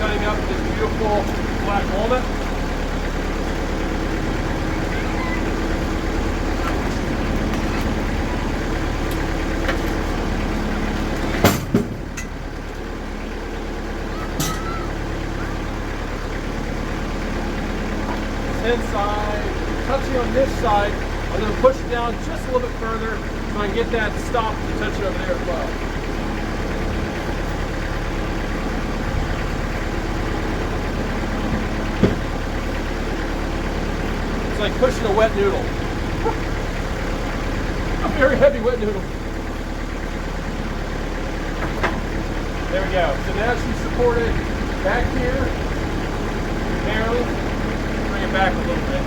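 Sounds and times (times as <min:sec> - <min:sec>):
diesel engine running: 0:00.0 - 0:49.0
loud knocks: 0:11.3 - 0:12.4, 0:31.6 - 0:32.4.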